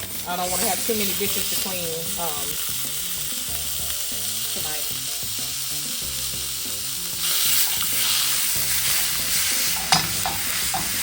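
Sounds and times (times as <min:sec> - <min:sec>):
meat sizzling in a skillet: 0:00.0 - 0:11.0
utensil knocking against pan: 0:09.8 - 0:11.0.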